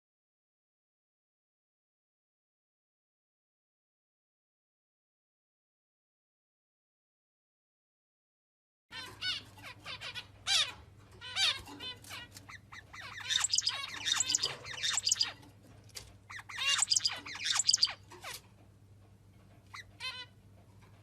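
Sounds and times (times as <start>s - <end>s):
bird chirping and squawking: 8.9s - 15.5s, 16.3s - 18.4s, 19.7s - 20.4s.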